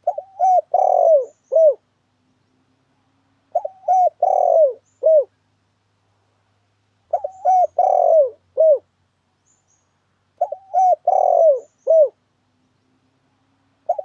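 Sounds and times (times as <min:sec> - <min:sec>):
dove cooing: 0:00.0 - 0:01.8, 0:03.5 - 0:05.4, 0:07.1 - 0:08.9, 0:10.4 - 0:12.2.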